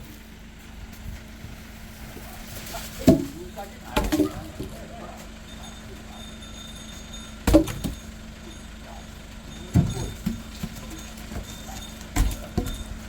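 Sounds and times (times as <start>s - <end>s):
firewood logs knocking: 3.0s - 4.8s, 7.5s - 8.1s, 9.7s - 13.0s.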